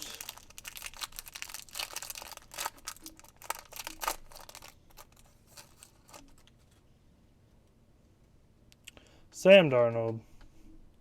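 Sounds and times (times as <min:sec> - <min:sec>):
wrapper being torn and crinkled: 0:00.0 - 0:06.5.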